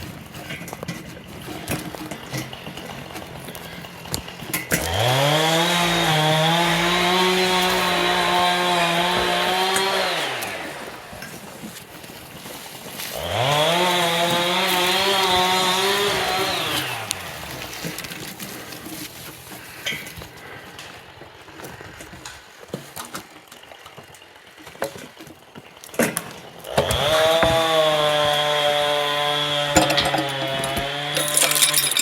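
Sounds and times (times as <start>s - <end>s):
chainsaw revving: 1.6s - 18.9s, 25.6s - 32.0s.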